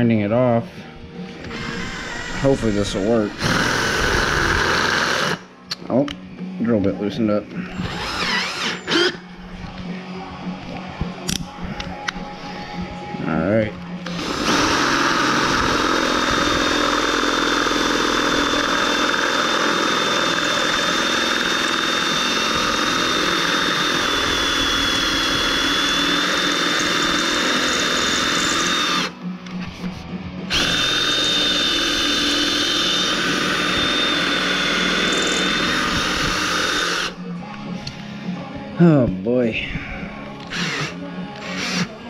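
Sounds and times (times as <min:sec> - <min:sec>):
electric drill drilling into bolt: 0:01.4 - 0:05.4, 0:07.8 - 0:09.2, 0:14.0 - 0:29.2, 0:30.5 - 0:37.2, 0:40.4 - 0:41.9.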